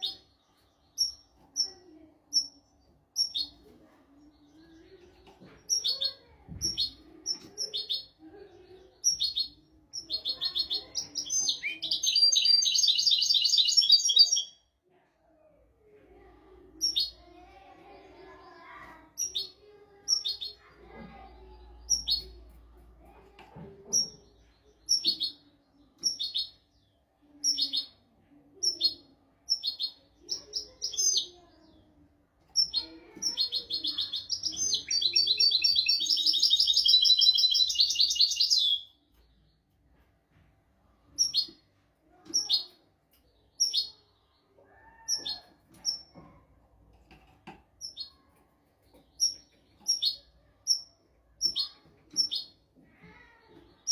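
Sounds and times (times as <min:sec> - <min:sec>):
finch singing chirps and trills: 0:09.0 - 0:14.6, 0:28.6 - 0:31.8, 0:32.5 - 0:39.4, 0:48.8 - 0:52.6.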